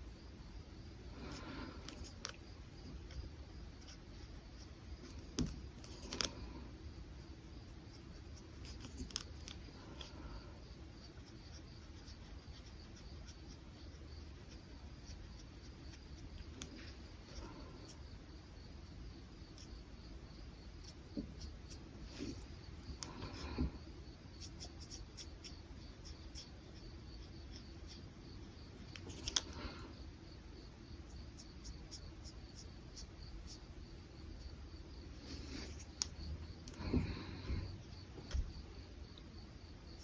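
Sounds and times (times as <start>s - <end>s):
brush pen strokes on paper: 22.0s - 23.5s, 35.2s - 37.2s.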